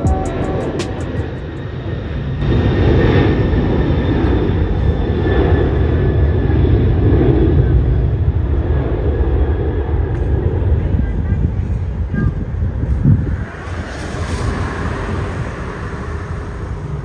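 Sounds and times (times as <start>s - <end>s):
jet engines rumbling at takeoff: 0.0s - 17.0s.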